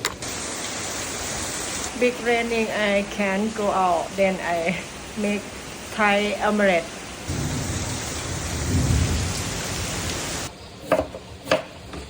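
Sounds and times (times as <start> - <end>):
heavy rain pouring: 0.0 - 10.5
thunder rumbling: 1.9 - 10.5.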